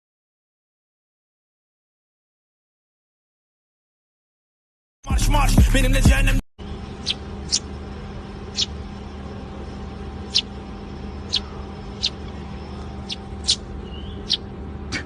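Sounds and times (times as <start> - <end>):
steady background hum: 5.1 - 15.0
small animal chirping: 7.0 - 7.8, 8.5 - 8.8, 10.2 - 10.6, 11.2 - 14.5.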